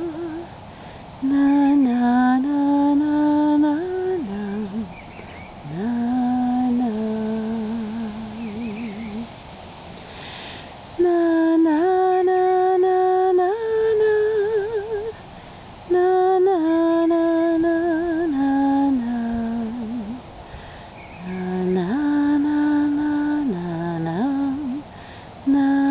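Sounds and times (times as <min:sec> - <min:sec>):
woman humming a lullaby: 0:00.0 - 0:00.5, 0:01.2 - 0:05.0, 0:05.6 - 0:09.3, 0:11.0 - 0:15.2, 0:15.9 - 0:20.3, 0:21.2 - 0:24.9, 0:25.5 - 0:25.9.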